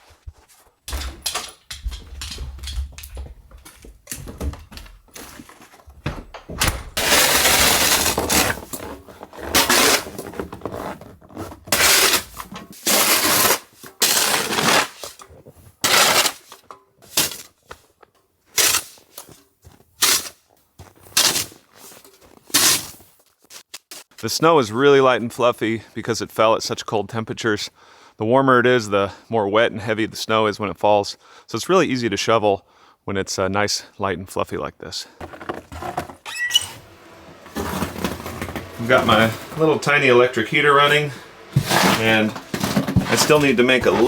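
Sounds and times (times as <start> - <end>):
snow shovel scraping snow: 7.0 - 15.2, 15.8 - 17.5, 18.6 - 23.6, 35.2 - 44.0.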